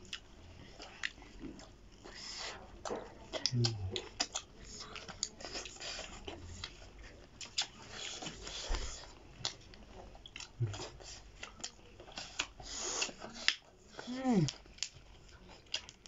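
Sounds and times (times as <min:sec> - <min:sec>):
people chewing meat: 0:00.0 - 0:16.0
mouth clicks and smacks: 0:03.3 - 0:04.5.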